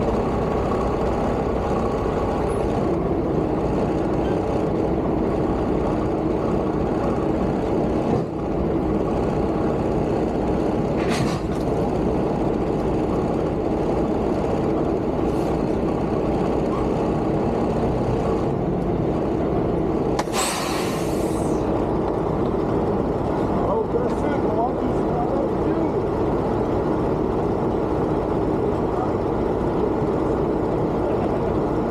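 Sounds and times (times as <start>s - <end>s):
diesel truck engine droning: 0.0s - 31.9s
air brake hissing: 20.2s - 21.7s.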